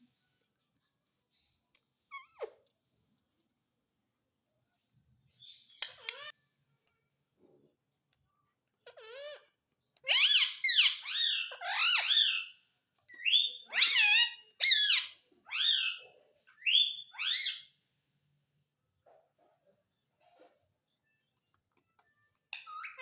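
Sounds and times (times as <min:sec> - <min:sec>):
parrot squeaky calls: 0:05.4 - 0:06.3, 0:08.8 - 0:17.7, 0:22.6 - 0:23.0.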